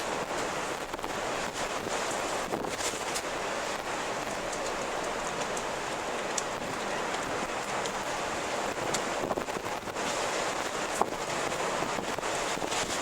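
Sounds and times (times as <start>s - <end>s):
storm wind rushing: 5.8s - 13.0s.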